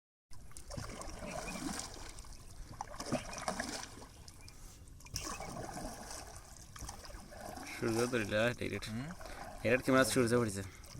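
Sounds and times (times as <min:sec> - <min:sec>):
water lapping against boat: 0:00.3 - 0:10.9.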